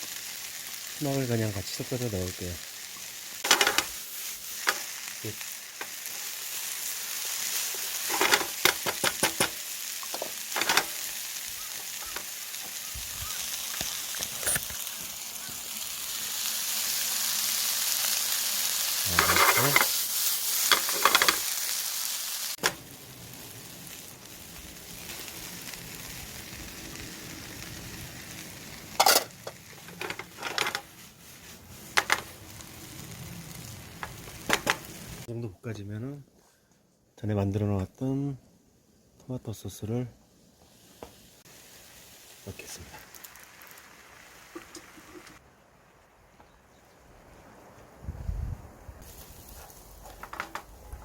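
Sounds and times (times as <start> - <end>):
vegetables sizzling in a pan: 0.0 - 35.3, 40.5 - 48.0, 48.9 - 51.0
utensil scraping a pan: 19.1 - 20.0.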